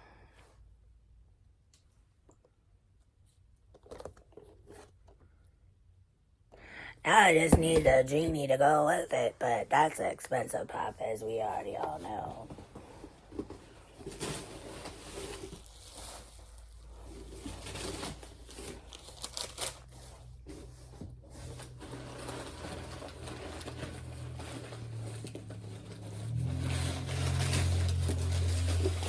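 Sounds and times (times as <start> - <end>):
packing paper crinkling: 14.0 - 20.3, 21.4 - 29.0.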